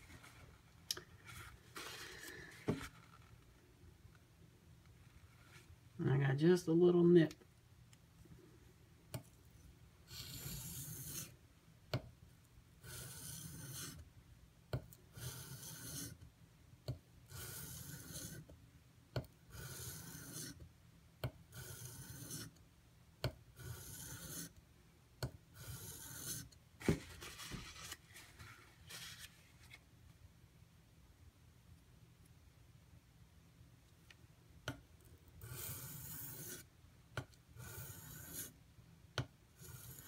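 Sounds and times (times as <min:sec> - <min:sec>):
knife scraping on whetstone: 0:10.1 - 0:11.3, 0:12.8 - 0:14.0, 0:15.2 - 0:16.2, 0:17.3 - 0:18.4, 0:19.6 - 0:20.6, 0:21.6 - 0:22.5, 0:23.6 - 0:24.5, 0:25.6 - 0:26.5, 0:35.4 - 0:36.6, 0:37.6 - 0:38.6, 0:39.6 - 0:40.0.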